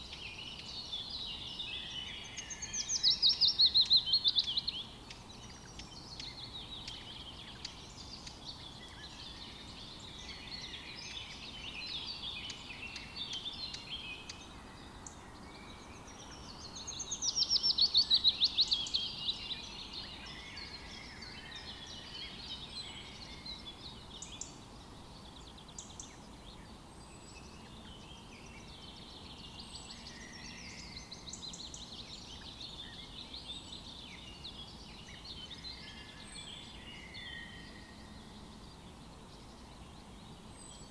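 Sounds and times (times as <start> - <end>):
songbirds chirping and warbling: 0.0 - 40.9.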